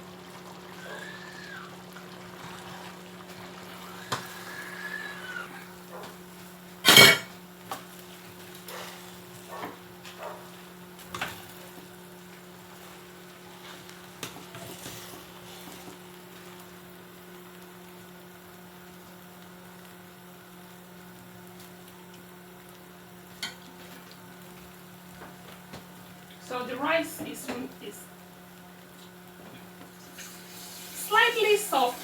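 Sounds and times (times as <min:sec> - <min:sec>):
low electrical hum: 0:00.0 - 0:32.0
pot lid clattering: 0:06.8 - 0:07.3.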